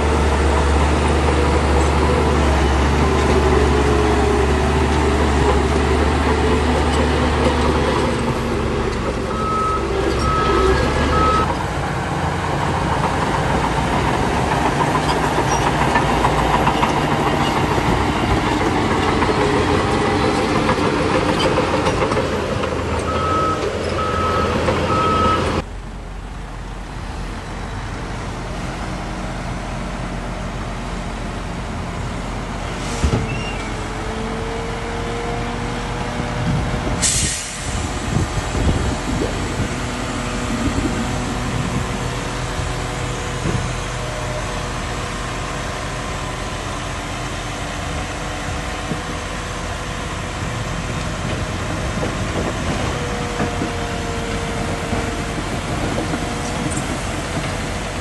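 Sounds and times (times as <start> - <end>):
heavy machinery diesel engines: 0.0 - 58.0
reversing alarm beeping: 9.3 - 11.5, 23.1 - 25.6.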